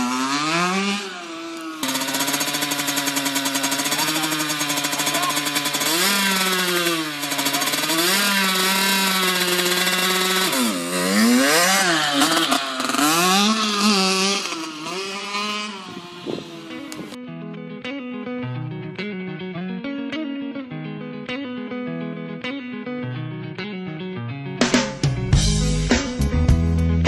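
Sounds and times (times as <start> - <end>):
motocross bike engine revving: 0.0 - 17.2.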